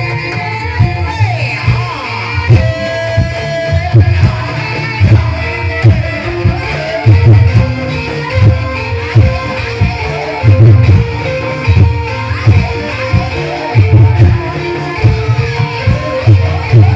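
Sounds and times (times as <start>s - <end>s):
deep drum beats: 0.0s - 16.9s.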